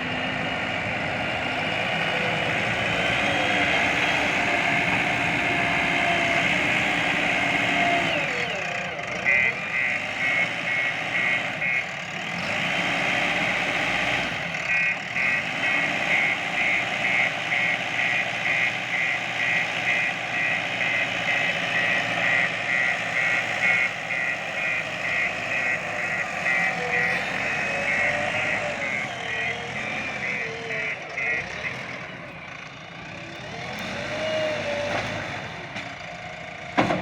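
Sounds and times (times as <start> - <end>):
diesel engine running: 0.0 - 37.0
reversing alarm beeping: 9.3 - 11.9, 14.7 - 32.3.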